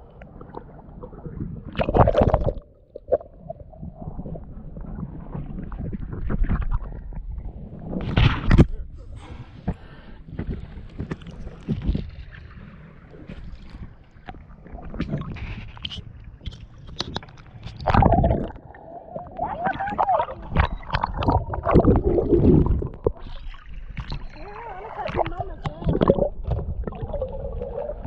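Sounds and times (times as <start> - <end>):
water sloshing against boat hull: 7.8 - 28.0.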